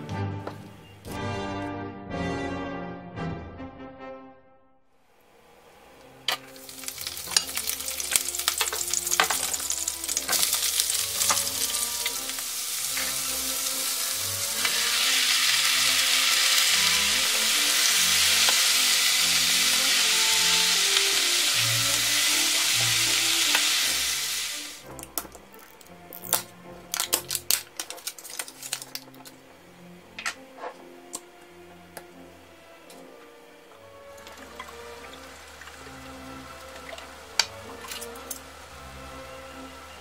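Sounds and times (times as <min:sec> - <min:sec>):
onion sizzling in oil: 0:06.3 - 0:25.0, 0:25.6 - 0:29.2, 0:34.1 - 0:39.8.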